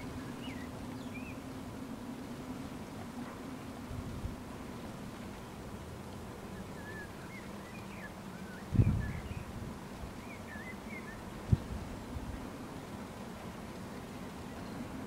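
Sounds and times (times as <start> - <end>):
faint bird chirps: 6.5 - 9.5, 14.4 - 15.0.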